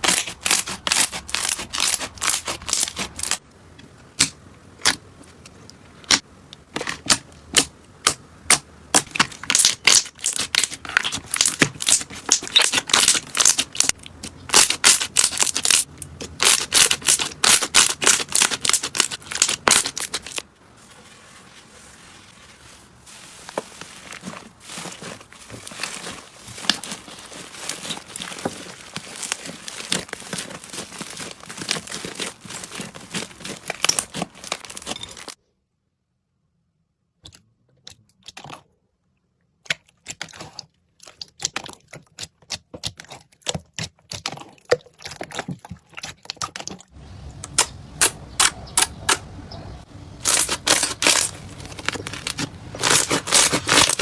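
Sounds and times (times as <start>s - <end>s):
soft slime crackling: 17.8s - 34.9s.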